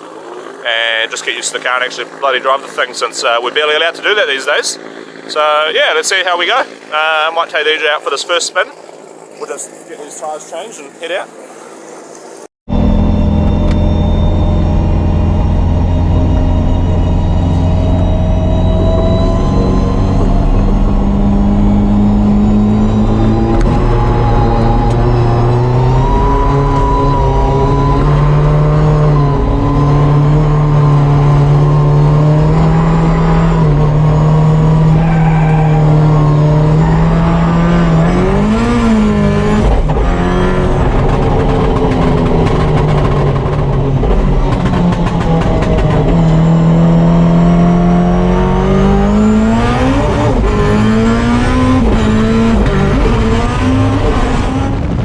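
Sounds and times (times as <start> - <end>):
car engine revving hard: 12.7 - 55.0.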